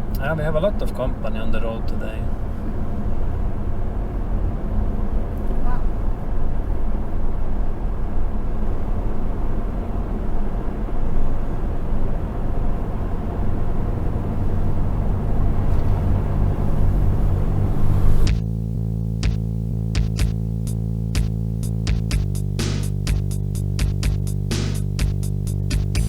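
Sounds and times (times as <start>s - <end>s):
car road and engine noise: 0.0s - 26.0s
music: 18.2s - 26.0s.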